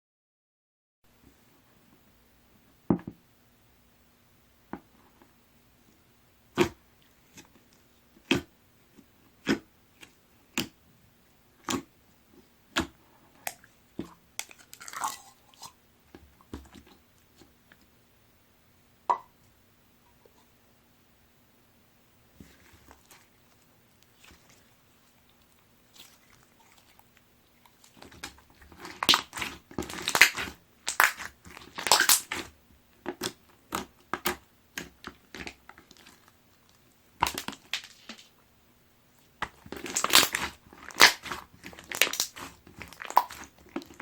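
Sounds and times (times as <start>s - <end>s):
slime crackling: 22.4s - 32.5s, 39.4s - 44.0s.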